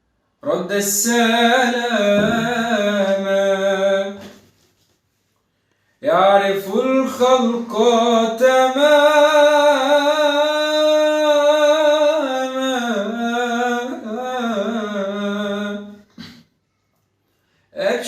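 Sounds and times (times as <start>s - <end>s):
person singing unaccompanied: 0.4s - 4.4s, 6.0s - 16.1s.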